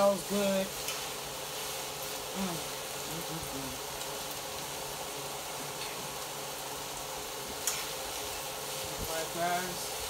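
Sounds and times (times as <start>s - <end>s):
beans sizzling in a skillet: 0.0s - 10.0s.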